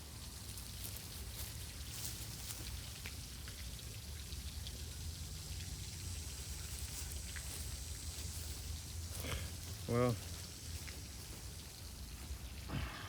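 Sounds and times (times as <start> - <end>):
light crackling ticks: 0.5 - 4.8.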